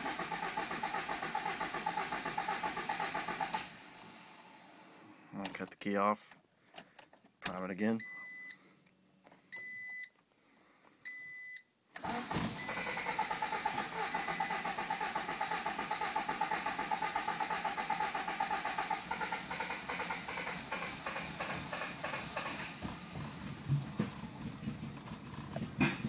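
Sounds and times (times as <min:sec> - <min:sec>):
starter cranking engine: 0:00.0 - 0:04.1, 0:12.0 - 0:26.0
short electronic beeps: 0:08.0 - 0:08.6.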